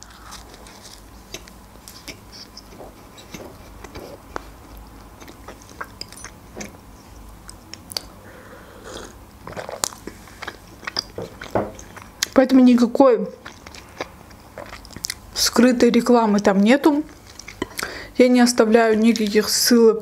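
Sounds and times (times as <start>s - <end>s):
chewing food close up: 0.0s - 8.2s, 8.9s - 15.6s, 16.3s - 17.9s
wet mouth clicks and smacks: 7.4s - 8.2s.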